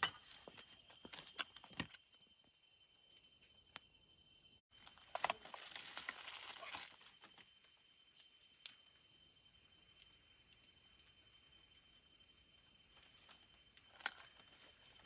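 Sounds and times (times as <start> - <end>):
crinkling rustle: 4.8 - 7.5, 12.9 - 15.0.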